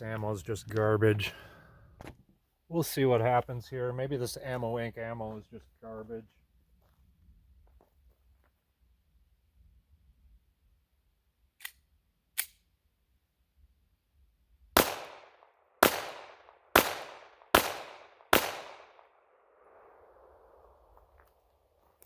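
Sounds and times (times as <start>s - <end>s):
sharp gun clicks: 11.6s - 12.7s, 14.8s - 19.1s
pistol shots echoing: 14.8s - 20.6s.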